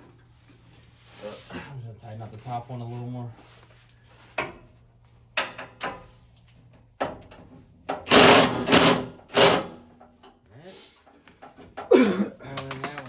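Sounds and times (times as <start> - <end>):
impact wrench rattling: 7.0 - 9.8.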